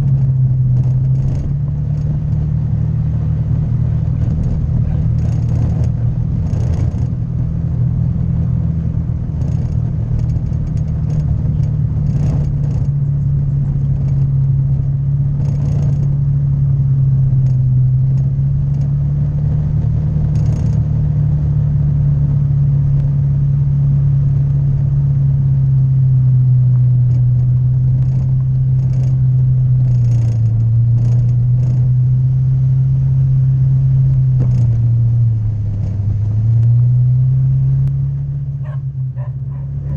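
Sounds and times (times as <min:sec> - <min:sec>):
knocks from rough road: 0:00.0 - 0:02.6, 0:04.0 - 0:07.3, 0:09.3 - 0:16.2, 0:19.7 - 0:21.0, 0:26.7 - 0:31.9, 0:34.2 - 0:35.0
scooter engine cruising: 0:00.0 - 0:39.9
wind and road noise: 0:00.0 - 0:39.9.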